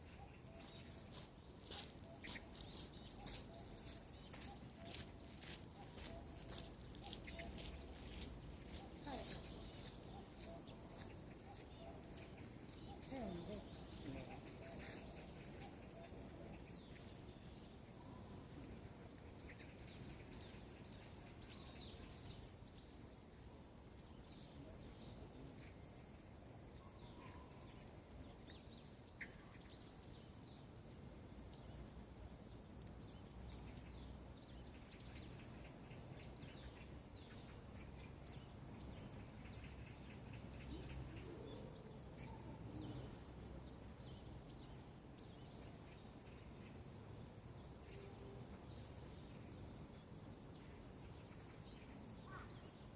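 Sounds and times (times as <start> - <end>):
birds chirping: 0.0 - 30.5.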